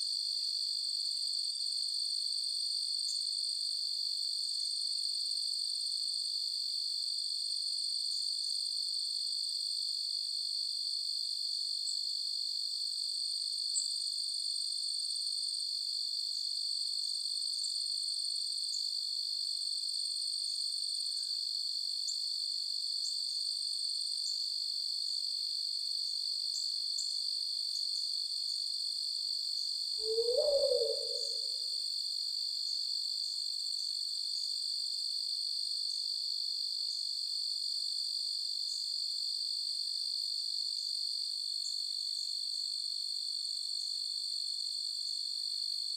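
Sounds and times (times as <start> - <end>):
short cricket chirps: 13.6 - 34.8
crickets trilling: 30.0 - 32.2.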